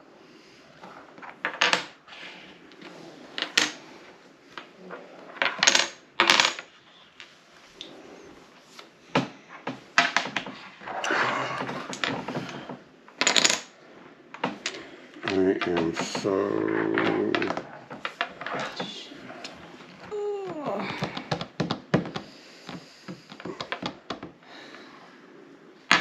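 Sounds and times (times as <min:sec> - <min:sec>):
game pieces clicking on tabletop: 0:13.2 - 0:13.7, 0:14.4 - 0:18.9.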